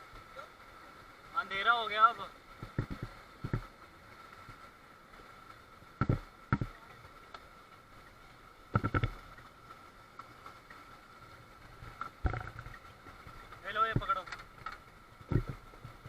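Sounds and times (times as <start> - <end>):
faint steady hiss: 0.0 - 16.0
short thumps: 2.6 - 3.7, 6.0 - 6.8, 8.8 - 9.2, 12.2 - 12.8, 15.3 - 15.6.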